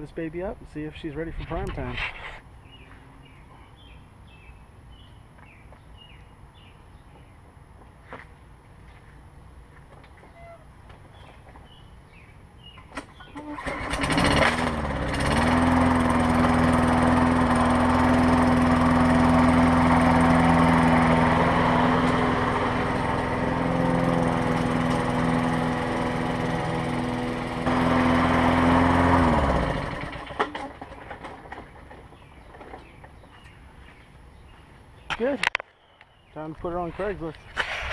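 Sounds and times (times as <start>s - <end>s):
mower engine starting and running: 12.6s - 33.1s.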